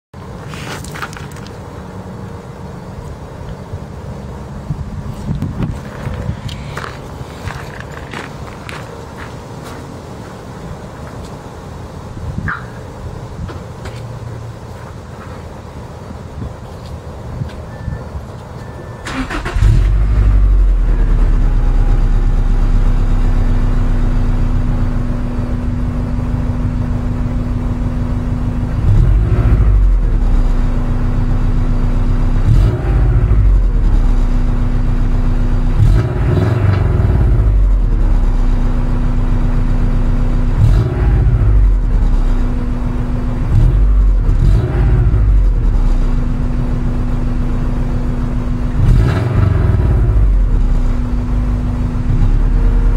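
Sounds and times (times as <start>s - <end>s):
car engine idling and revving: 0.2s - 52.9s.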